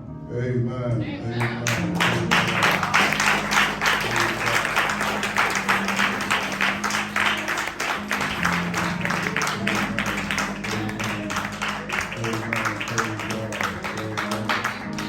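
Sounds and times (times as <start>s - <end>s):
low instrumental chords: 0.0s - 15.0s
congregation clapping: 1.4s - 15.0s.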